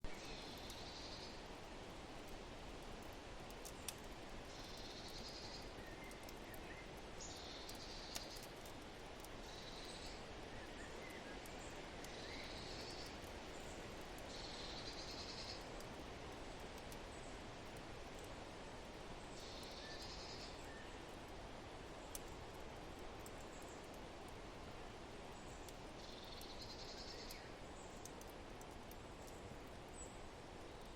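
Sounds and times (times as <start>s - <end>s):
fire crackles: 0.0s - 30.9s
faint bird chirps: 9.4s - 13.2s, 14.2s - 15.7s, 19.4s - 20.9s.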